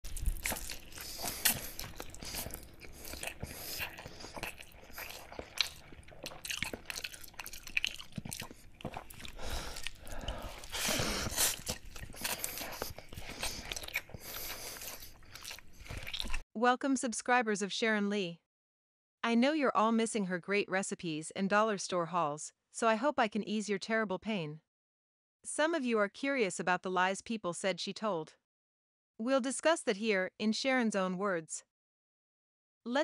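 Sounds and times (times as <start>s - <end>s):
person chewing food: 0.0s - 16.4s.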